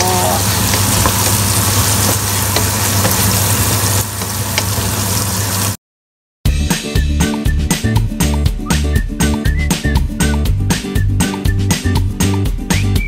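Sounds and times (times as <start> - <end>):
food sizzling in a pot: 0.0 - 5.8.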